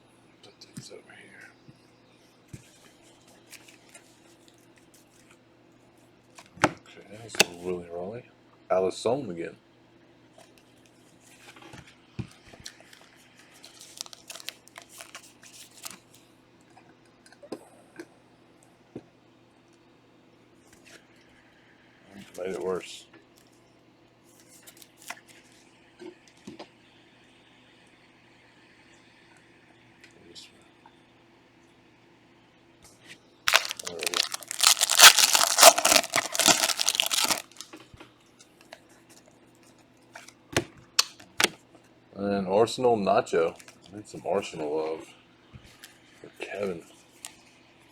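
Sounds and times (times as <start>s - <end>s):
wrappers crinkling: 12.6s - 16.0s, 33.5s - 37.7s.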